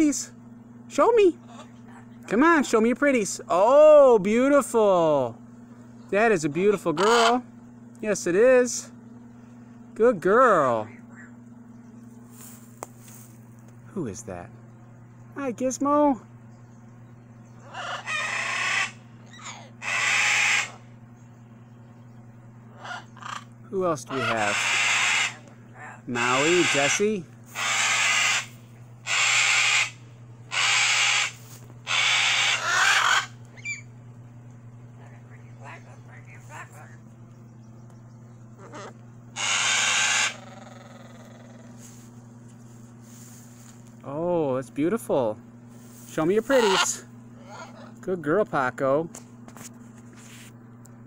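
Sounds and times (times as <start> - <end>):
macaw squawking: 1.4 - 2.6, 6.2 - 7.6, 10.9 - 11.5, 17.5 - 20.9, 22.6 - 33.9, 35.0 - 37.0, 38.5 - 41.9, 46.2 - 48.0.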